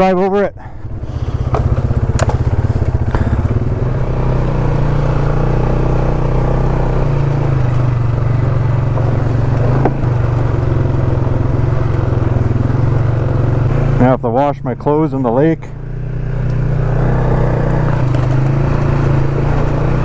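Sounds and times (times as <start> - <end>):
atv engine running: 0.0 - 20.0
knocks and clatters: 1.4 - 13.7, 17.8 - 20.0.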